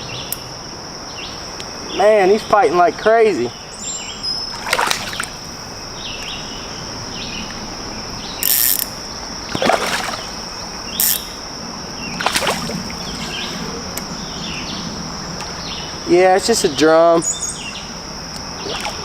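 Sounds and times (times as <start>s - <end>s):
high-pitched insect trill: 0.0s - 19.0s
bird chirps: 3.5s - 4.8s
fish splashing at water surface: 4.5s - 5.5s, 9.5s - 10.6s, 12.2s - 13.4s.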